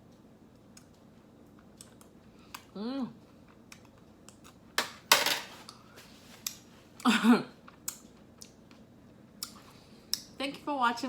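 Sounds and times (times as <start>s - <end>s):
tableware clicks and clatter: 4.8s - 5.6s.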